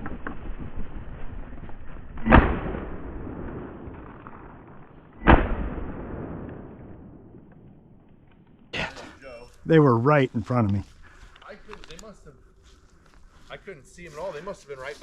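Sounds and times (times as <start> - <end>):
shotgun shots: 2.2 - 4.0, 5.2 - 7.1.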